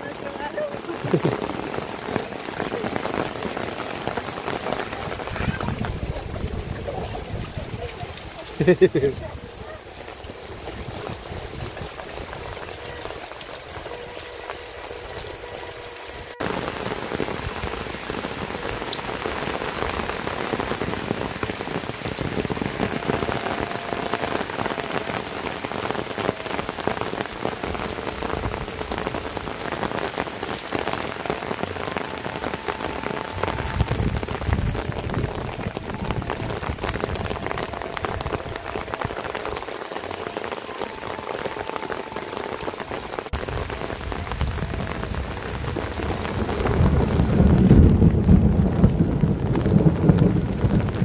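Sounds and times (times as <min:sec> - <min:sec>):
heavy rain pouring: 0:00.0 - 0:51.0.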